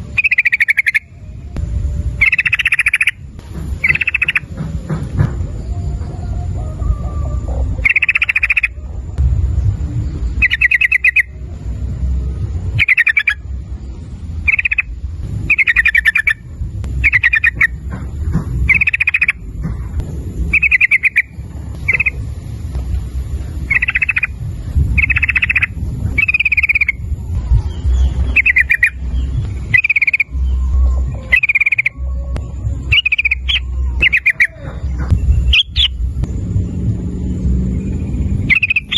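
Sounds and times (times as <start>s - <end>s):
bulbul singing bubbling phrases: 0.0s - 1.5s, 2.1s - 4.5s, 7.8s - 8.8s, 10.3s - 11.6s, 12.7s - 13.4s, 14.5s - 14.9s, 18.7s - 19.4s, 23.6s - 24.4s, 27.8s - 29.0s, 29.7s - 32.0s, 32.8s - 36.0s
steady low rumble: 0.0s - 38.9s.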